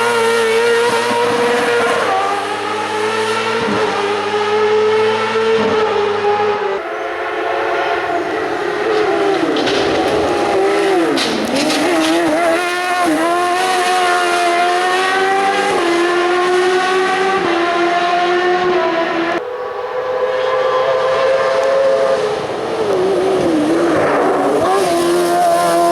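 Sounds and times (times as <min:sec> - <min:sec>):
racing car engine accelerating: 0:00.0 - 0:25.9
steady engine note: 0:06.2 - 0:11.2, 0:19.4 - 0:22.8.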